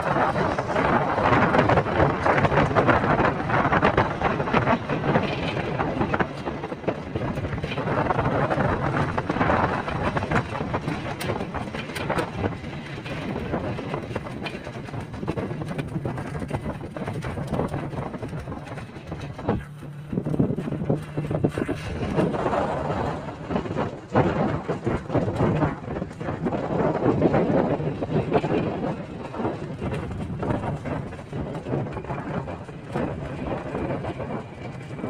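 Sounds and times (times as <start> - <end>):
road and wind noise: 0.0 - 35.0
vehicle engine running: 0.0 - 35.0
small knocks and rattles: 1.6 - 27.3.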